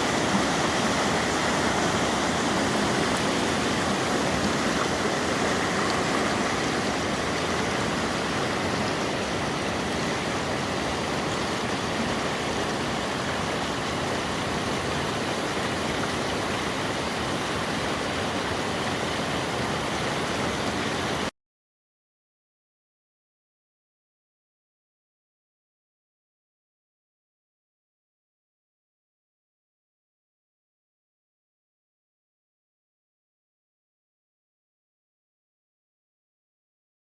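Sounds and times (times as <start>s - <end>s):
waterfall rushing: 0.0s - 21.3s.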